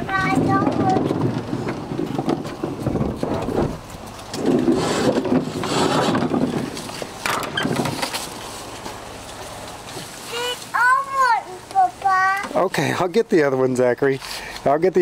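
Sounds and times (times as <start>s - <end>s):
plastic trash can rolled over ground: 0.2s - 8.2s.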